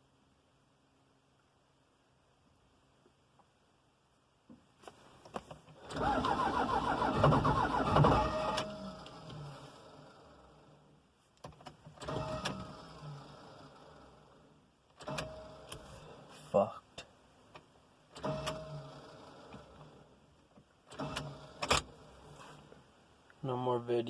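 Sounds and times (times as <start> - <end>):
diesel engine starter cranking: 5.8 - 10.4, 12.0 - 14.2, 15.0 - 15.8, 18.1 - 19.9, 20.9 - 22.0.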